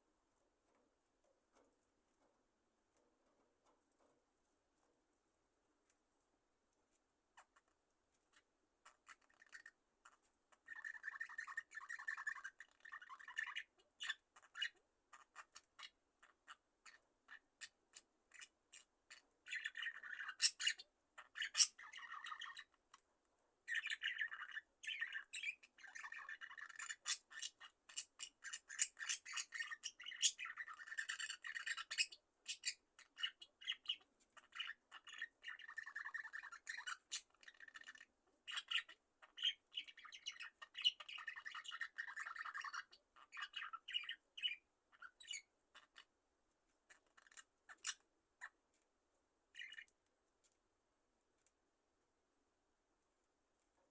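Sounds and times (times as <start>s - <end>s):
budgerigars chirping and squawking: 7.4s - 7.7s, 8.3s - 22.8s, 23.7s - 46.1s, 46.9s - 48.6s, 49.5s - 49.9s.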